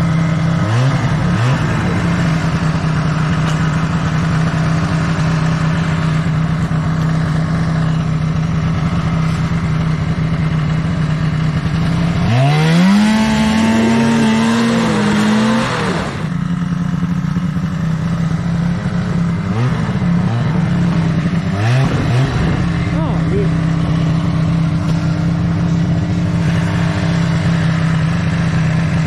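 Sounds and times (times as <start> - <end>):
snowmobile engine revving: 0.0 - 29.0.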